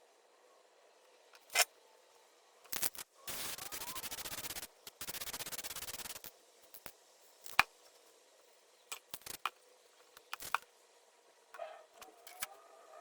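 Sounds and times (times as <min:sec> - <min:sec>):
hard objects clicking and knocking: 0:08.9 - 0:10.7.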